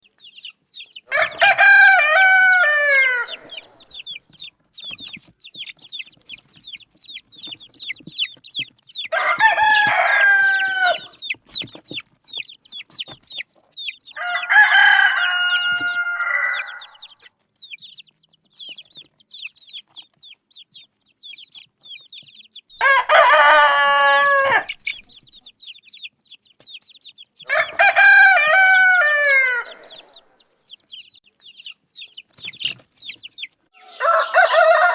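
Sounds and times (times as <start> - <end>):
roosters crowing: 1.1 - 4.2, 9.1 - 11.3, 14.1 - 17.3, 22.8 - 25.0, 27.4 - 30.4, 33.8 - 34.9.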